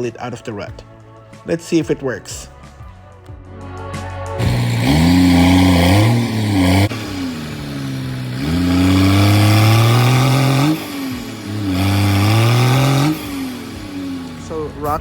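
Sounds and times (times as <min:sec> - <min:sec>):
truck engine revving under load: 0:04.4 - 0:15.0.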